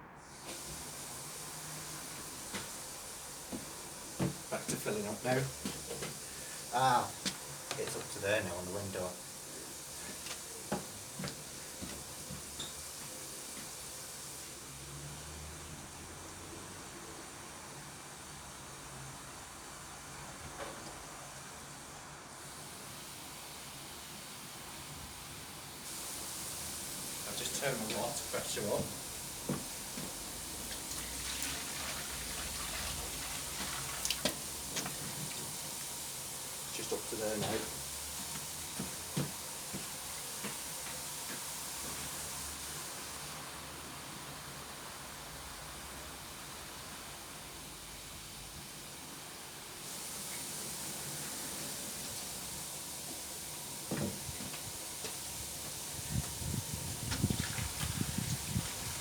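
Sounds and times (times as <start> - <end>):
steady hiss: 0.0 - 59.0
water running from a tap: 0.3 - 19.7, 22.4 - 59.0
water pouring and sloshing: 26.7 - 37.8, 56.0 - 59.0
low splashes and thumps: 56.0 - 59.0.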